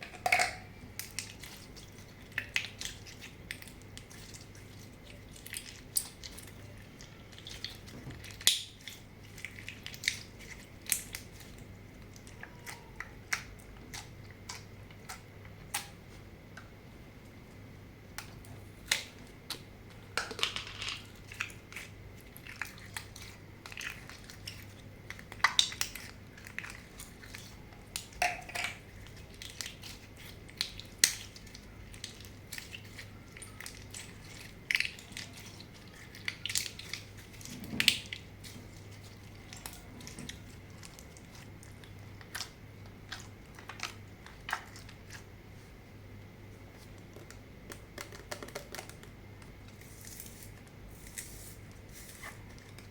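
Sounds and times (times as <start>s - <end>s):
slime squishing by hand: 0.0s - 52.9s.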